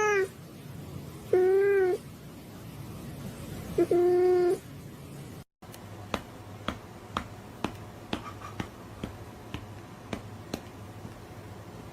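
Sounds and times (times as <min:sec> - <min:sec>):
low steady hum: 0:00.0 - 0:11.9.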